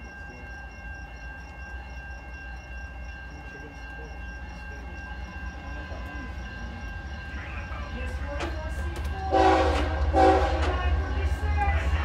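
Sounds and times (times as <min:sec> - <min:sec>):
fast pulsing high tone: 0:00.0 - 0:09.6
distant freight train rumble: 0:00.0 - 0:12.0
steady high-pitched tones: 0:00.0 - 0:12.0.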